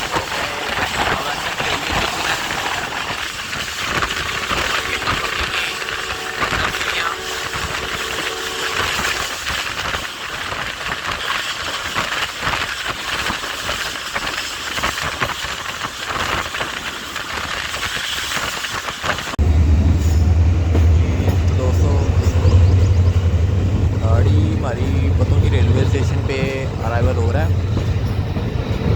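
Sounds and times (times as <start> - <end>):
train rushing noise: 0.0 - 28.9
train wheels clattering on rails: 0.0 - 28.9
loud low drone: 19.4 - 28.9.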